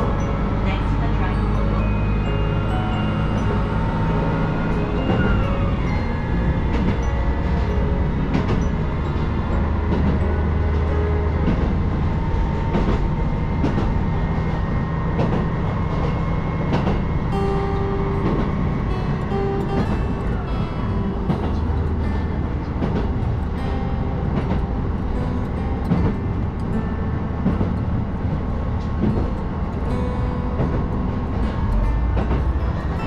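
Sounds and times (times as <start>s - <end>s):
railcar engine rumble: 0.0s - 33.0s
wheels clicking over rail joints: 0.0s - 33.0s.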